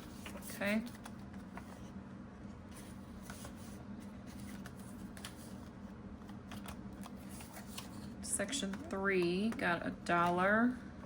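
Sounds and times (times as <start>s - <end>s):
paper rustling: 0.0s - 2.0s, 2.7s - 8.8s.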